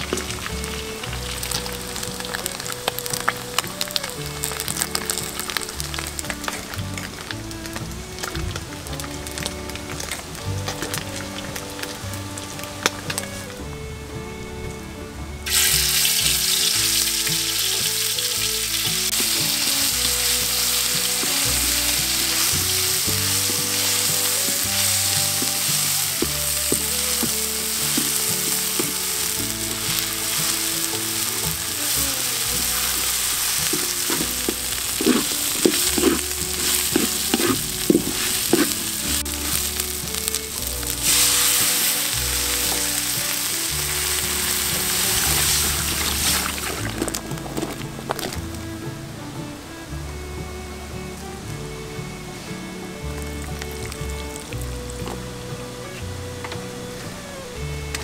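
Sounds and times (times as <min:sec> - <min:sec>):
chilies sizzling in hot oil: 0:00.0 - 0:06.7, 0:15.5 - 0:48.5
spatula scraping a pan: 0:32.6 - 0:39.8.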